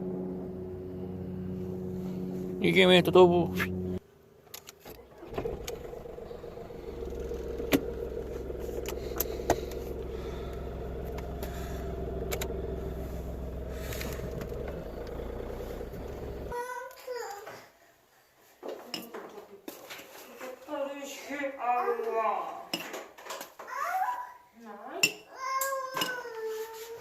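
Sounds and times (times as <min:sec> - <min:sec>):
car driving hum: 0:00.0 - 0:04.0, 0:04.9 - 0:16.5
sharp clicks: 0:12.3 - 0:12.5.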